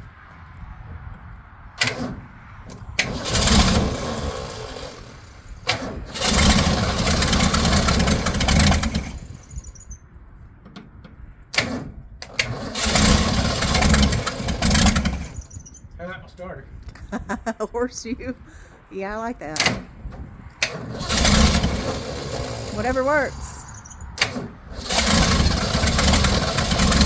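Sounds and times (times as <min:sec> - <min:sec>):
car engine running rough: 0:01.8 - 0:09.8, 0:12.4 - 0:15.5, 0:20.6 - 0:27.0
starter click: 0:19.6 - 0:27.0.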